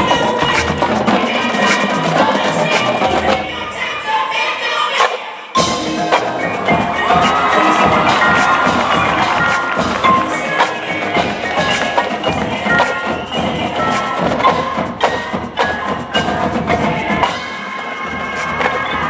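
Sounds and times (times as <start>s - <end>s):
mallet percussion notes: 5.6s - 19.0s.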